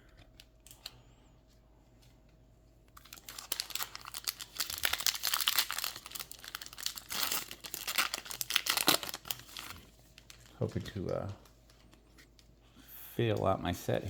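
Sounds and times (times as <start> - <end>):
foil wrapper tearing and crinkling: 3.0 - 11.1.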